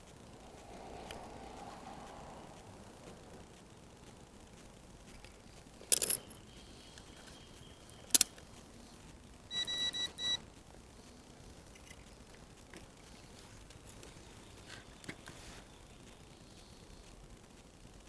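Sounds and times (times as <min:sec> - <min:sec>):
metallic clatter of tools: 0:05.8 - 0:06.4
high electronic beeps: 0:09.5 - 0:10.4.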